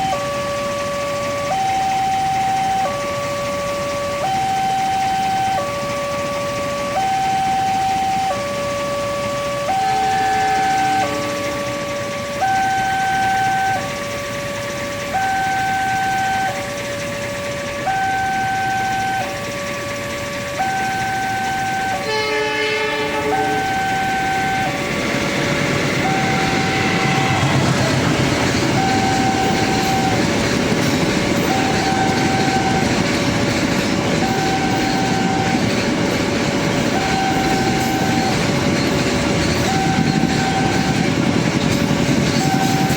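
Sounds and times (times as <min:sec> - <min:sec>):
level crossing alarm two tones: 0:00.0 - 0:14.0, 0:15.1 - 0:16.8, 0:17.9 - 0:22.0, 0:23.2 - 0:24.8, 0:26.0 - 0:28.0, 0:28.6 - 0:30.4, 0:31.4 - 0:33.0, 0:34.2 - 0:35.7, 0:36.9 - 0:38.5, 0:39.6 - 0:41.1
horn-like tone: 0:01.4 - 0:03.0, 0:04.2 - 0:06.2, 0:06.8 - 0:14.0, 0:15.1 - 0:16.7, 0:17.8 - 0:19.4, 0:20.6 - 0:24.8, 0:26.0 - 0:27.9, 0:28.8 - 0:30.3, 0:31.5 - 0:32.9, 0:34.2 - 0:35.6, 0:36.9 - 0:38.4, 0:39.6 - 0:41.0, 0:42.4 - 0:42.9.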